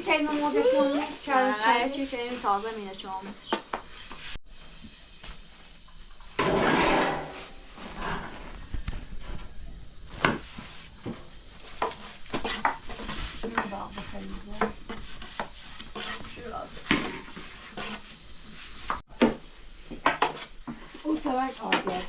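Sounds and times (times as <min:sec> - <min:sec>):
stirring and scraping: 0:00.0 - 0:19.2, 0:19.8 - 0:22.0.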